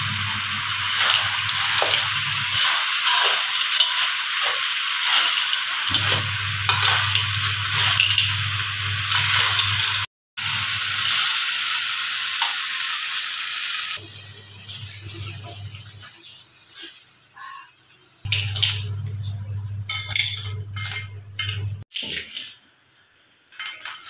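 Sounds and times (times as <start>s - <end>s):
food sizzling in a wok: 0.0s - 24.0s
low hum: 5.9s - 10.0s, 18.3s - 21.8s.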